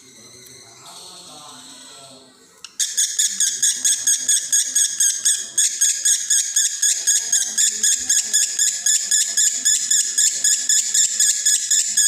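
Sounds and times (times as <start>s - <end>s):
lovebird chattering: 2.7s - 12.0s.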